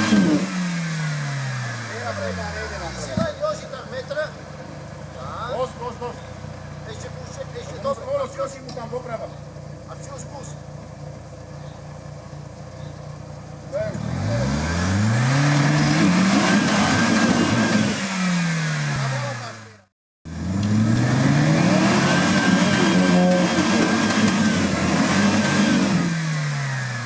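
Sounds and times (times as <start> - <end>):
engine revving hard: 0.0 - 4.2, 13.7 - 27.0.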